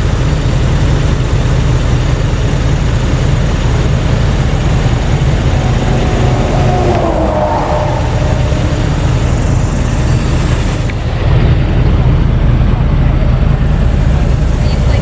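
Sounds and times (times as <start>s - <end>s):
traffic rumble: 0.0s - 15.0s
vehicle passing by: 3.5s - 11.3s.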